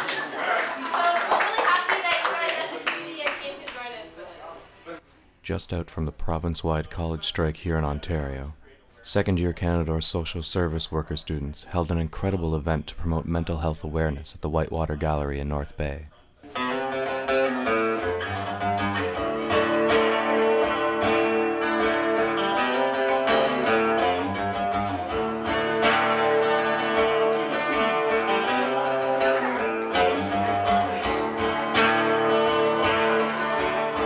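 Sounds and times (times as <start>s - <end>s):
acoustic guitar strumming: 9.6s - 34.0s.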